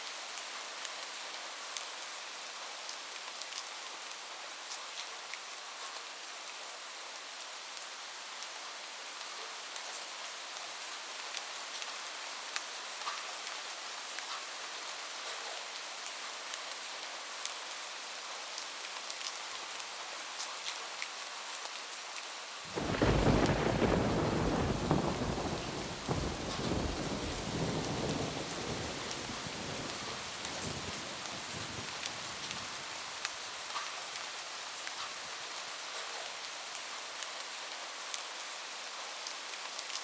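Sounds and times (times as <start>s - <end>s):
rain on a roof: 0.0s - 40.0s
thunder rumbling: 22.7s - 32.8s
raindrop ticks: 22.8s - 33.9s.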